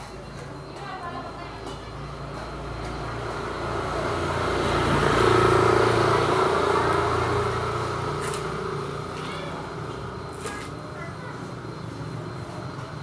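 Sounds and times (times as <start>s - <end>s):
vehicle passing by: 3.1s - 9.1s.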